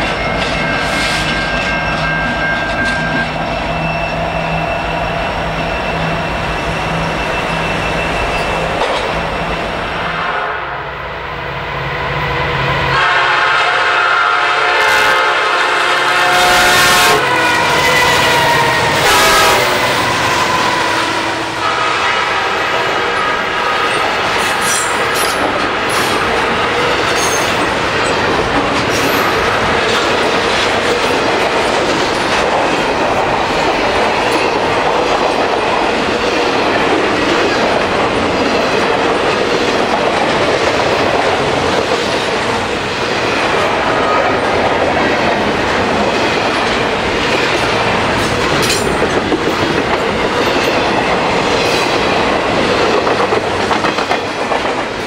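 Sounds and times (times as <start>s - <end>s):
train wheels rolling on rail: 0.0s - 10.3s, 11.3s - 55.0s.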